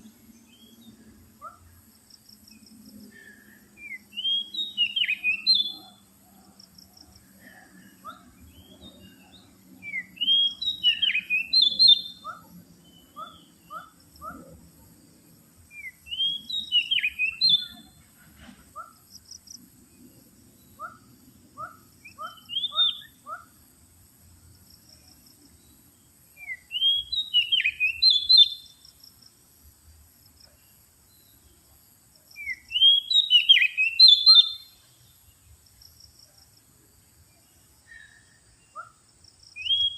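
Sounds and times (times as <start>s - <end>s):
bird whistling song: 3.8s - 6.0s, 8.5s - 13.9s, 15.7s - 17.9s, 21.6s - 23.3s, 26.4s - 28.8s, 32.4s - 34.8s, 39.5s - 39.9s.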